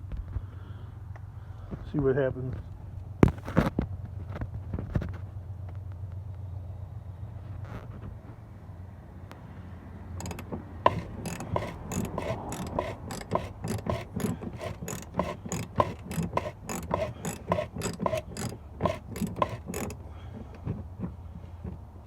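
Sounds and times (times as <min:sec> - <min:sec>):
wrench ratcheting: 0:10.2 - 0:20.1.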